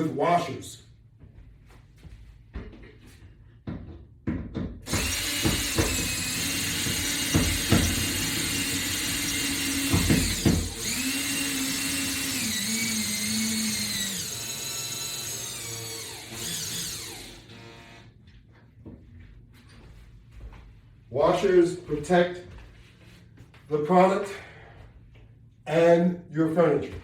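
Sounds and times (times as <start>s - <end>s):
power drill running: 4.8s - 18.2s.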